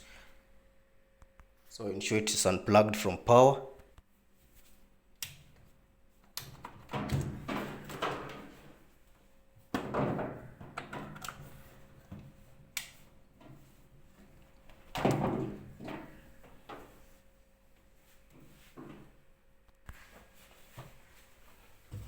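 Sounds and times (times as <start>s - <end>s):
knocks and rattles from appliance: 6.7s - 8.8s, 9.8s - 11.3s, 14.9s - 16.8s.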